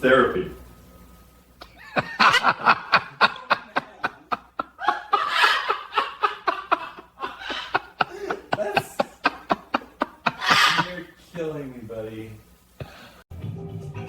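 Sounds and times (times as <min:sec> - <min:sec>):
hearty laughter: 0:01.7 - 0:11.1.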